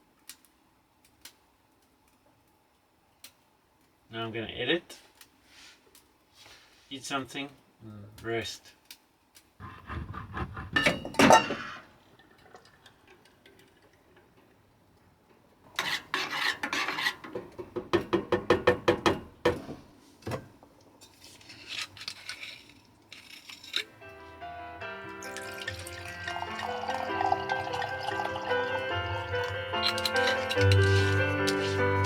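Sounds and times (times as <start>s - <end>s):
utensil scraping a pot: 9.6s - 11.9s, 15.7s - 17.5s, 21.0s - 24.0s, 25.2s - 32.0s
cookware and cutlery clattering: 10.7s - 14.4s, 15.8s - 19.6s, 25.2s - 32.0s.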